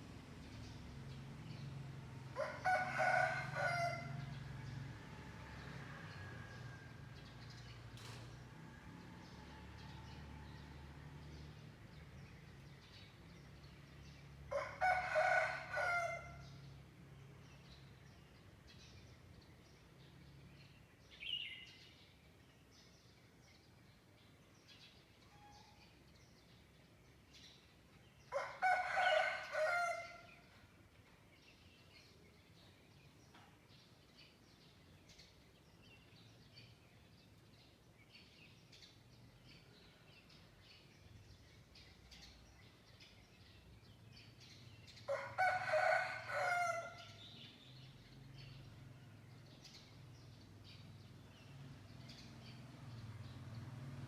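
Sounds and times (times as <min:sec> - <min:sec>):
rooster crowing: 0:02.4 - 0:04.4, 0:14.5 - 0:16.5, 0:28.3 - 0:30.3, 0:45.1 - 0:47.2.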